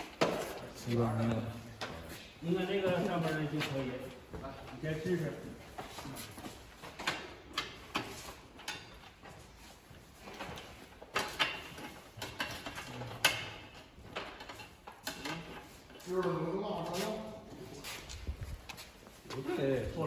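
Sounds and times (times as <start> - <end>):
motorcycle parts clicking and knocking: 6.8 - 9.4, 10.2 - 15.8.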